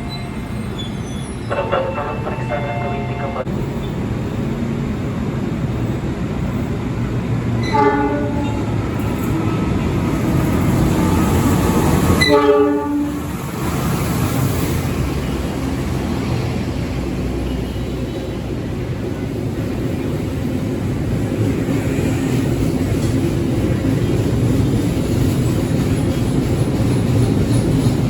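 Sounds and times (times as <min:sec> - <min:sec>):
train rumbling: 0:00.0 - 0:28.0
train horn blasts: 0:01.5 - 0:03.5, 0:07.6 - 0:08.7, 0:12.1 - 0:13.3.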